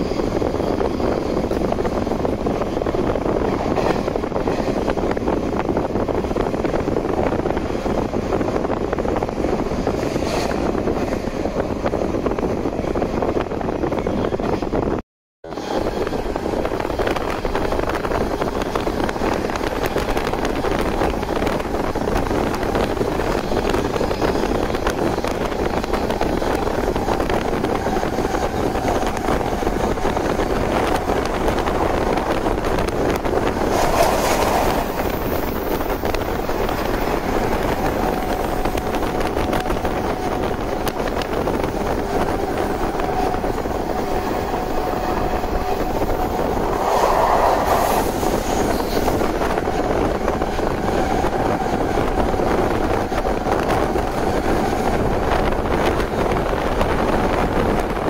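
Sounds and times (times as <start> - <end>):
train wheels rumbling on rail: 0.0 - 58.0
brief rush of air: 33.6 - 35.3, 46.4 - 49.1.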